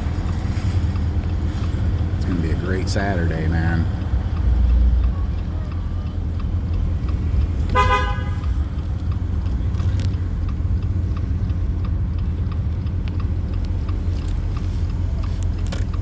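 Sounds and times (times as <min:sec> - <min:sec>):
open car driving rumble: 0:00.0 - 0:16.0
car horn toot: 0:07.7 - 0:08.6.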